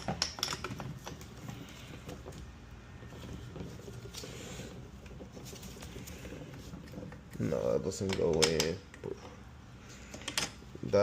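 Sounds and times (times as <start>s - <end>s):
metal sockets and wrench clicking: 0.0s - 1.3s, 7.4s - 9.0s.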